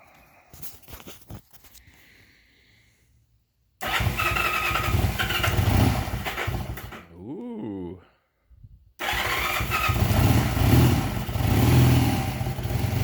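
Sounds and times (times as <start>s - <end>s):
motorcycle engine running unevenly: 9.9s - 13.0s.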